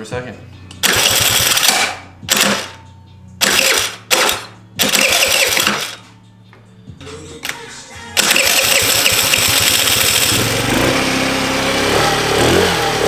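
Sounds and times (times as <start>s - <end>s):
scooter engine revving and idling: 0.8s - 2.7s, 3.4s - 6.0s, 8.2s - 13.0s.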